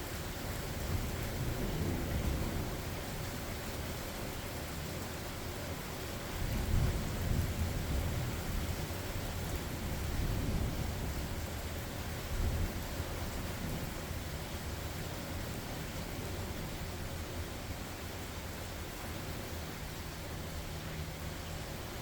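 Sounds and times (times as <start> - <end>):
steady rain falling: 0.0 - 22.0
low rolling thunder: 0.8 - 3.4, 6.4 - 17.1.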